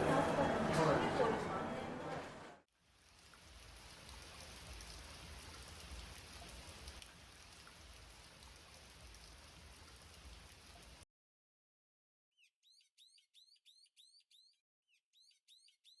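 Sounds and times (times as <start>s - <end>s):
faint steady rain: 2.8s - 11.0s
individual raindrop ticks: 2.9s - 11.0s.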